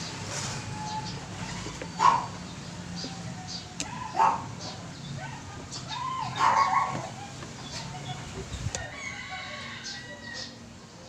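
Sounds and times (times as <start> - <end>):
dog barking: 2.0 - 2.4, 4.0 - 5.4, 6.3 - 7.1.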